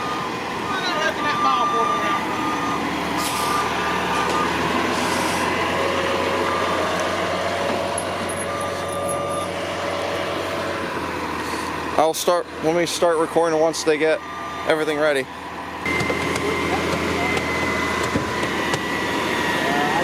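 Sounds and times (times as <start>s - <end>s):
electronic warning beeps: 0.0s - 5.6s, 6.4s - 7.0s, 8.3s - 9.6s, 15.9s - 18.5s
diesel engine running: 0.0s - 20.0s.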